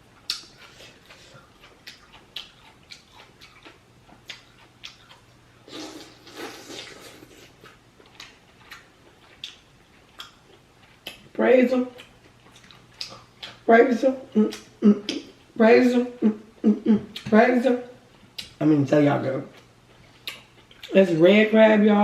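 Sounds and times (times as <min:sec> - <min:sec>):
wet chewing and lip-smacking: 0:00.1 - 0:13.7, 0:14.4 - 0:15.5, 0:18.2 - 0:18.6, 0:19.5 - 0:21.0.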